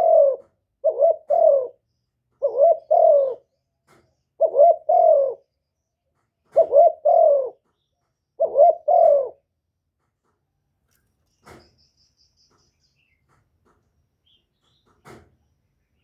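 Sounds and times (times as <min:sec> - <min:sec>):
dove cooing: 0:00.0 - 0:01.8, 0:02.4 - 0:03.5, 0:04.4 - 0:05.5, 0:06.5 - 0:07.6, 0:08.4 - 0:09.5.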